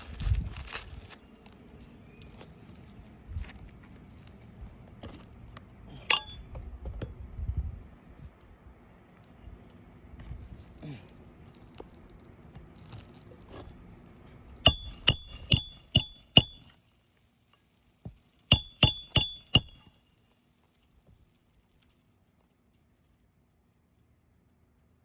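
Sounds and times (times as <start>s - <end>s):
hammer striking metal: 6.0s - 6.5s, 14.7s - 16.8s, 18.5s - 20.0s.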